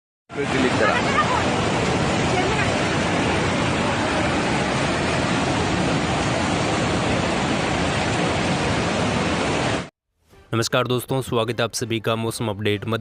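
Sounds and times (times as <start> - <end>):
heavy rain pouring: 0.3 - 9.9.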